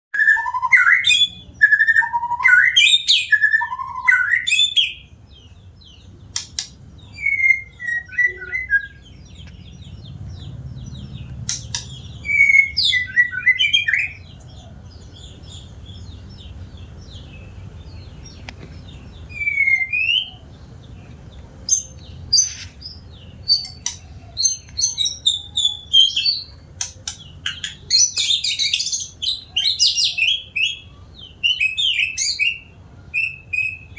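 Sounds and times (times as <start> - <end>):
bird whistled song phrases: 0.2 - 5.1, 6.5 - 9.2, 11.7 - 14.2, 19.2 - 20.5, 21.7 - 33.9.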